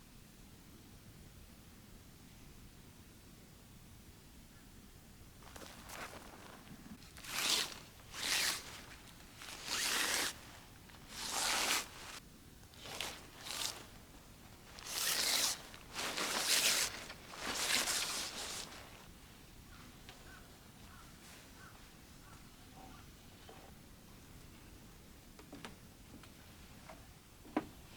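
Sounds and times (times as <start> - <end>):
zipper rasping: 5.4 - 12.2, 12.8 - 19.1.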